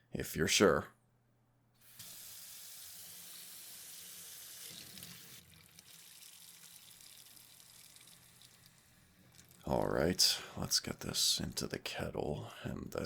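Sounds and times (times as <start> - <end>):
water pouring in a stream: 4.4 - 9.7.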